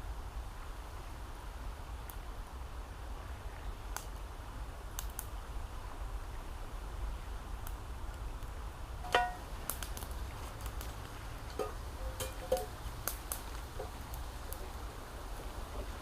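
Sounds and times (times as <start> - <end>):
campfire crackling: 0.0 - 16.0
low wind rumble: 0.0 - 16.0
ringing knocks of wood: 9.1 - 9.4
wood snapping: 9.1 - 11.6.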